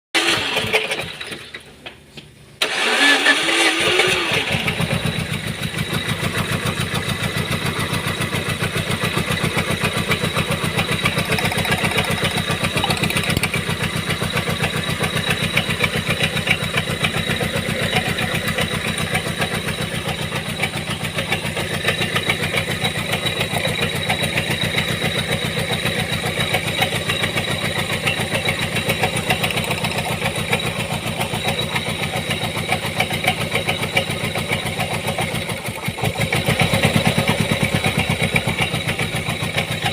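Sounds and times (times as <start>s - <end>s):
car engine starting and idling: 0.2s - 39.9s.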